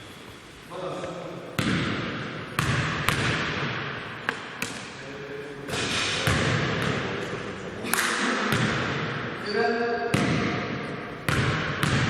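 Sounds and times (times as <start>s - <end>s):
basketball bouncing on gym floor: 1.6s - 4.9s, 5.7s - 9.3s, 10.1s - 12.0s.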